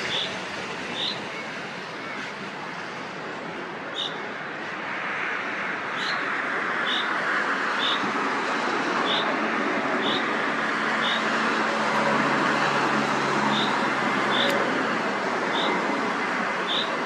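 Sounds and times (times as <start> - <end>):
traffic rushing: 0.0 - 17.0
vehicle approaching: 8.6 - 16.4.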